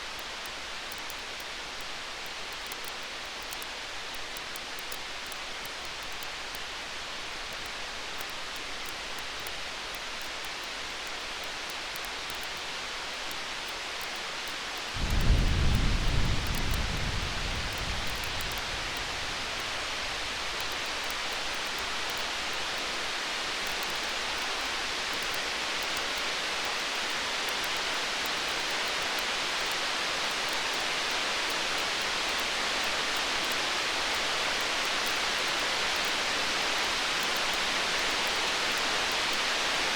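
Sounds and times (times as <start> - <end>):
campfire crackling: 13.3 - 25.4
distant thunder rumble: 15.0 - 20.7.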